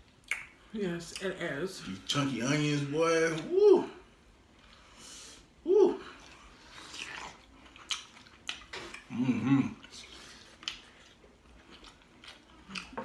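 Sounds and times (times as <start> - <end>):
wet clicks and lip smacks: 0.2 - 0.6
chewing: 6.1 - 13.0.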